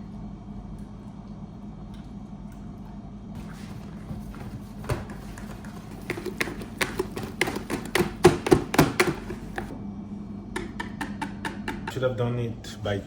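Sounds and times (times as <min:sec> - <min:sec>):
steady low hum: 0:00.0 - 0:13.0
hard objects tapping on work surface: 0:04.4 - 0:09.7, 0:10.6 - 0:12.0.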